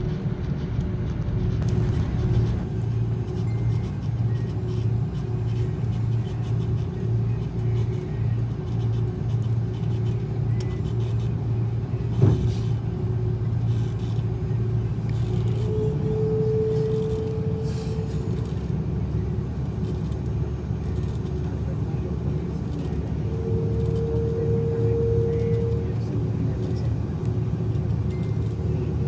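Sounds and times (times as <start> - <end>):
aircraft cabin rumble: 0.0 - 29.0
high steady tone: 23.1 - 29.0.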